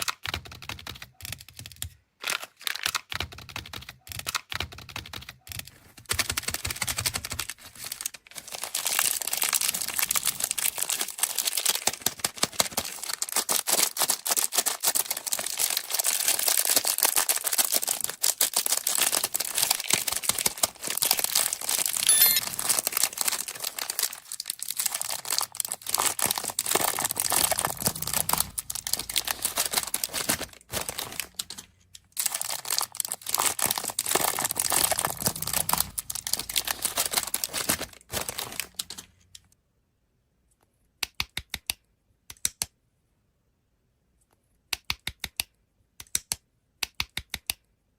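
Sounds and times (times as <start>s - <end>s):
plastic candy wrappers crinkling: 6.5s - 39.4s.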